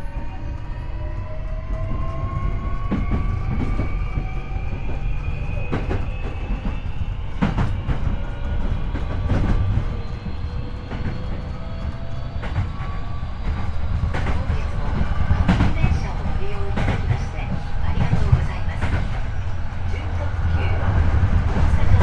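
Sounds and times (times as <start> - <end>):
wheels clacking over rail joints: 5.6 - 22.0.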